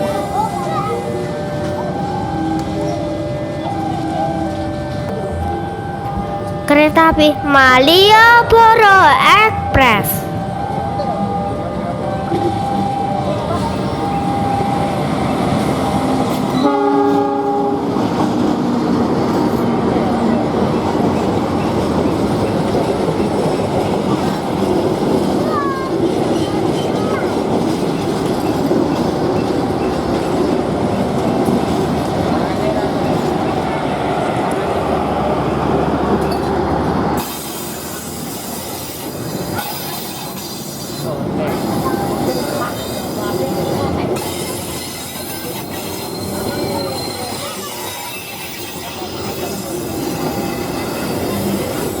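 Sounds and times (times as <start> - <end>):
train wheels rumbling on rails: 0.0 - 52.0
train horn blast: 16.6 - 18.1
wheel squeal: 37.2 - 52.0.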